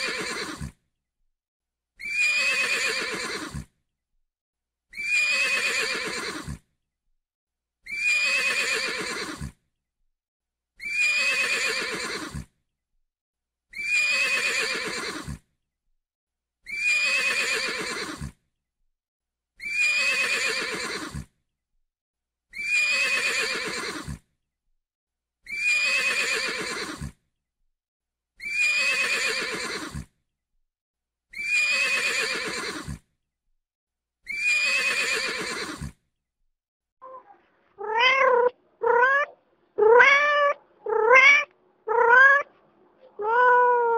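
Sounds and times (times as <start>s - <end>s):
horse whinnying: 0.0s - 0.8s, 2.0s - 3.7s, 5.0s - 6.6s, 7.9s - 9.6s, 10.8s - 12.5s, 13.8s - 15.4s, 16.7s - 18.4s, 19.6s - 21.3s, 22.6s - 24.2s, 25.5s - 27.2s, 28.4s - 30.1s, 31.4s - 33.0s, 34.3s - 36.0s, 37.8s - 42.5s.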